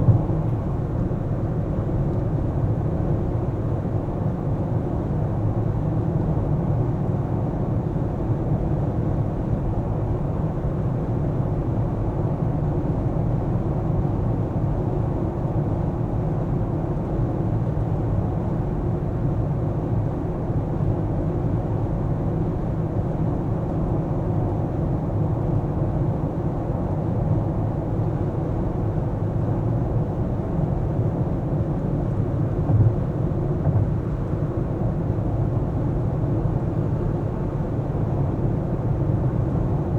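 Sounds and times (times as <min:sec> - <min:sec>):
car road and engine rumble: 0:00.0 - 0:03.8, 0:25.5 - 0:39.9.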